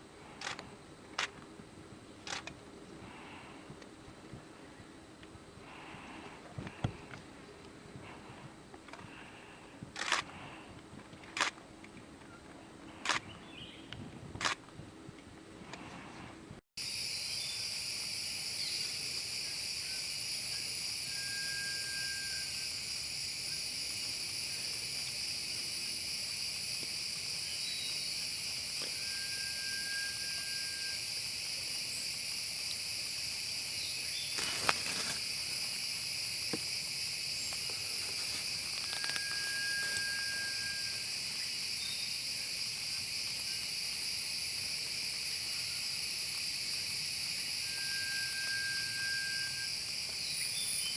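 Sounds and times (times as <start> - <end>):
insects chorus: 0.0 - 50.9
bird whistled note: 29.0 - 31.0, 47.6 - 49.7.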